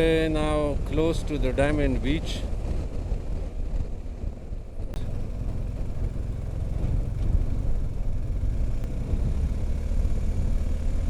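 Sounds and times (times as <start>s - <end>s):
wind rumble: 0.0s - 11.0s
motorcycle engine: 2.5s - 11.0s.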